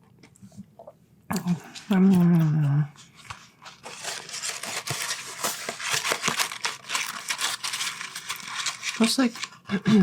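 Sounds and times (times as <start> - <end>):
paper crinkling and rustling: 3.0 - 10.0.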